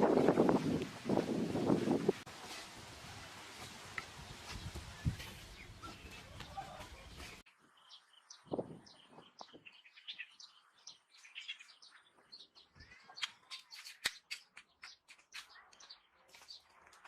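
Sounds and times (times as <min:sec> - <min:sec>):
birds chirping: 0:03.6 - 0:17.0.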